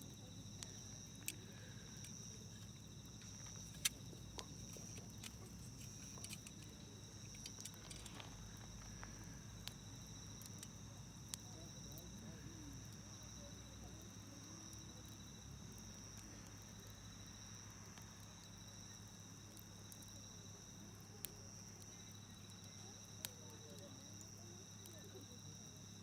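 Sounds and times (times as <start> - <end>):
high trill of insects: 0.0 - 11.0
campfire popping: 0.0 - 26.0.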